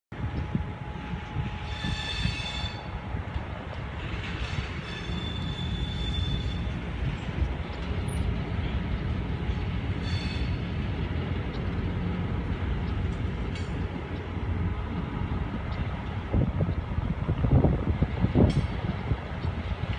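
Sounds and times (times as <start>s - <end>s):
freight train rumbling: 0.1s - 19.9s
high-pitched wheel squeals: 1.4s - 3.0s, 4.4s - 6.8s, 10.0s - 10.6s.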